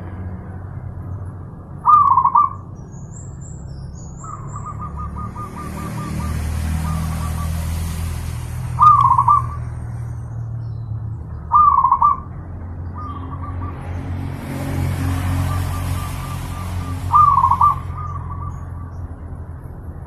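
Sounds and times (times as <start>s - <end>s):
dove cooing: 1.9s - 2.6s, 11.5s - 12.3s, 15.4s - 18.7s.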